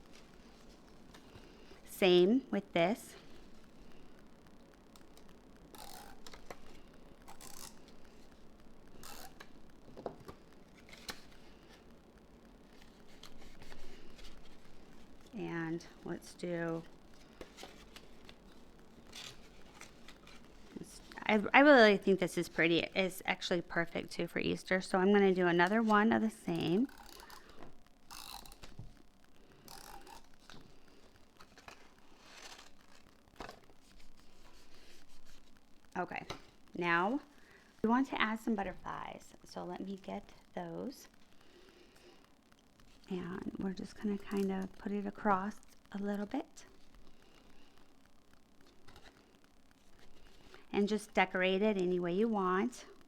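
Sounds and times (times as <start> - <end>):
paper rustling: 30.4 - 35.6.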